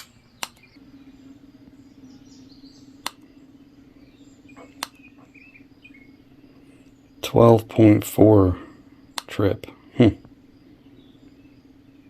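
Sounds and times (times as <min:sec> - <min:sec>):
sharp clicks: 0:00.0 - 0:00.8, 0:03.0 - 0:03.3, 0:04.6 - 0:05.3, 0:09.1 - 0:09.5
faint bird chirps: 0:00.0 - 0:12.0
steady low hum: 0:00.0 - 0:12.0.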